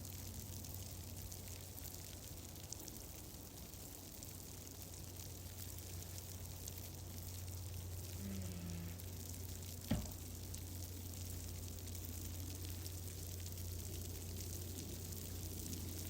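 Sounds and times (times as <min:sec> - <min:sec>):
fireplace fire crackling: 0:00.0 - 0:16.0
sharp pop of fire: 0:09.8 - 0:10.4.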